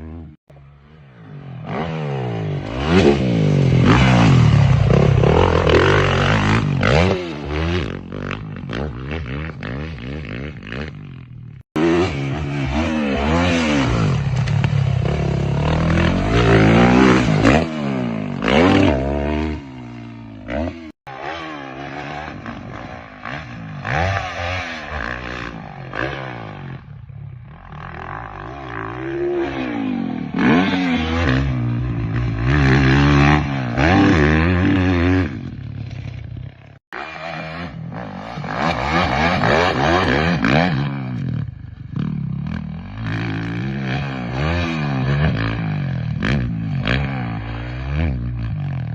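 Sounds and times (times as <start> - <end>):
motocross bike engine revving: 0.0 - 48.9.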